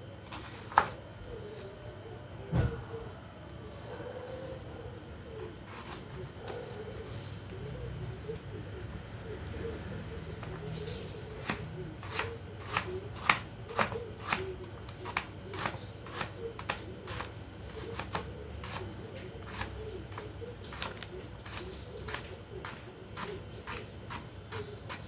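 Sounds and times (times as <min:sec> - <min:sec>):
knife chopping on cutting board: 0:11.4 - 0:14.4, 0:15.0 - 0:18.9, 0:19.5 - 0:24.3.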